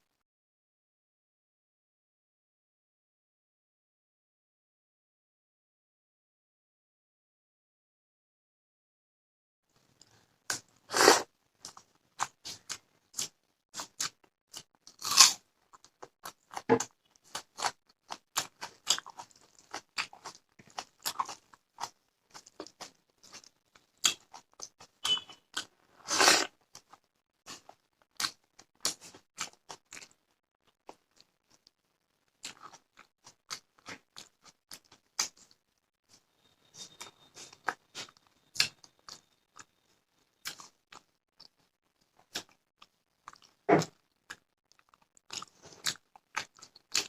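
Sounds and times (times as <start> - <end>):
chewing and crunching food: 9.7 - 47.0.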